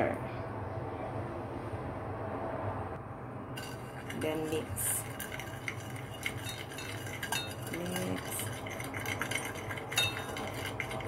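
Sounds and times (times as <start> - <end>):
spoon stirring in a bowl: 3.6 - 11.0.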